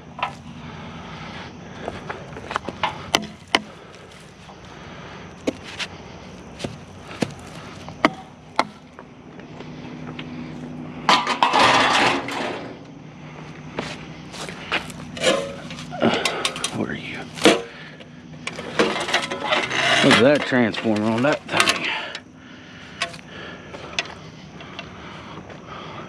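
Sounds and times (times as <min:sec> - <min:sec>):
metal scraping rattle: 0:11.1 - 0:12.8, 0:15.1 - 0:17.8, 0:18.4 - 0:22.3
scrap metal knocking and clanking: 0:11.1 - 0:12.8, 0:15.1 - 0:16.8, 0:17.4 - 0:17.8, 0:18.4 - 0:22.2.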